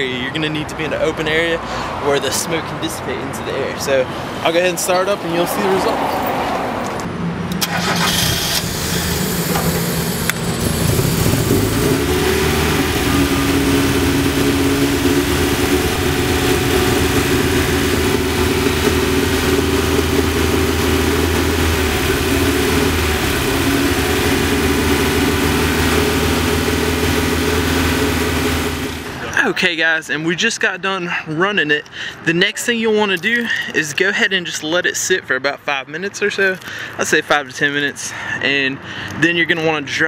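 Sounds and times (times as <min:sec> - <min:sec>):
car engine starting and idling: 0:03.9 - 0:29.5.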